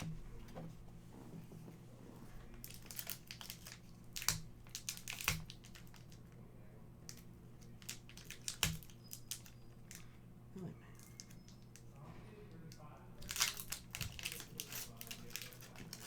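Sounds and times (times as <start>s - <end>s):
cards rustling: 2.2s - 6.3s, 7.0s - 10.1s, 13.2s - 16.0s
foil wrapper crinkling: 2.4s - 6.2s, 7.1s - 10.1s, 13.2s - 16.0s.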